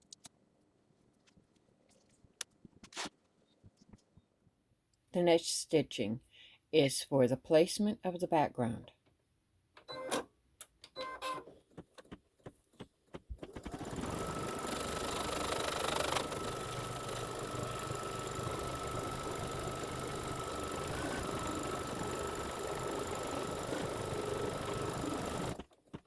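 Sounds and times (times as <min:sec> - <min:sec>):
embroidery machine stitching: 0:13.4 - 0:26.0.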